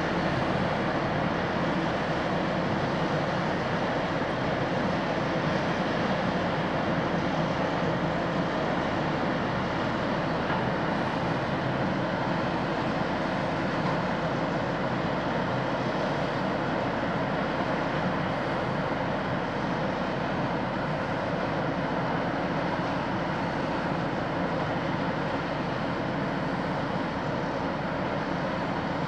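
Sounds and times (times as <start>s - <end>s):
ship engine droning: 0.0s - 29.0s.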